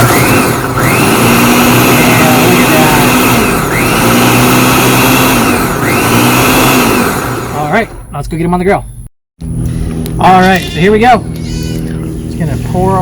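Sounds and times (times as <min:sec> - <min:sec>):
blender grinding eggshells: 0:00.0 - 0:07.9.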